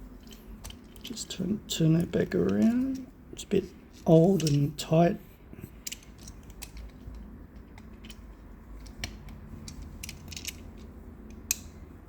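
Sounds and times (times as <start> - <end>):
faint low hum: 0.0 - 12.0
metal toy clicking and ticking: 4.0 - 4.7, 5.8 - 11.8.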